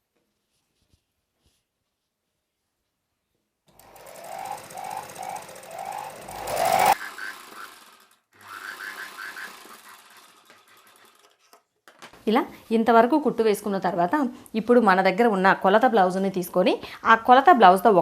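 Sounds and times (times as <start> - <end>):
sewing machine stitching: 3.7 - 11.5.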